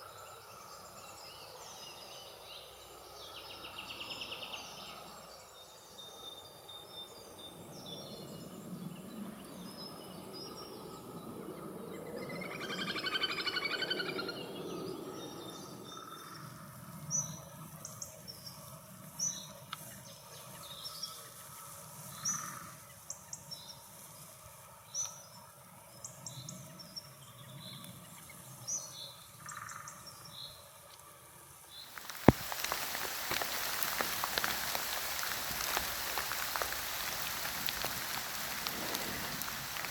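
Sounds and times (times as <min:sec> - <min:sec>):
steady rain-like hiss: 0:00.0 - 0:11.0, 0:30.7 - 0:39.9
songbirds chirping: 0:31.8 - 0:39.9.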